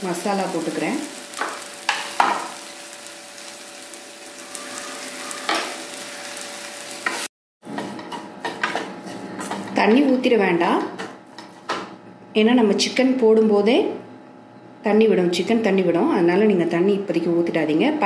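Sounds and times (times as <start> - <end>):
food sizzling in oil: 0.0 - 7.3.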